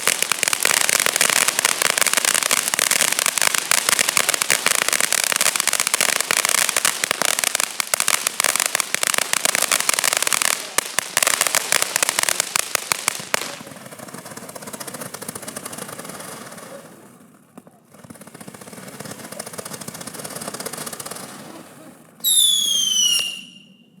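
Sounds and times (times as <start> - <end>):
firework pops: 0.0 - 13.8
crackling firework stars: 0.0 - 24.0
firework whistle falling in pitch: 22.2 - 24.0.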